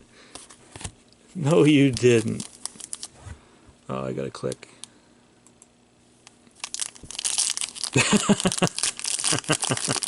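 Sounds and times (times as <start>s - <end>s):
card pack wrapper crinkling: 1.4s - 3.1s, 6.2s - 10.0s.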